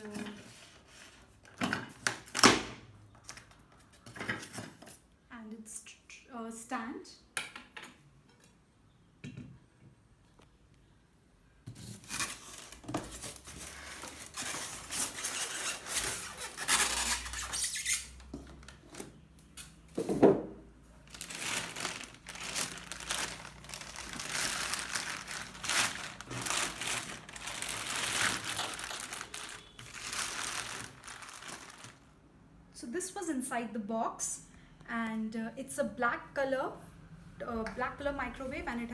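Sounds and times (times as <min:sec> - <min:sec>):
plastic wrapping crinkling: 0:11.8 - 0:19.1, 0:20.9 - 0:32.1.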